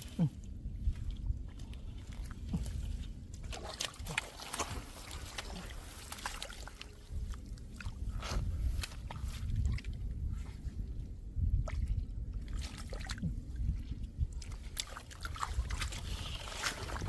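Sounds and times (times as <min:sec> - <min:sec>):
splashing in muddy water: 0:00.0 - 0:17.0
steady low rumble: 0:00.0 - 0:17.0.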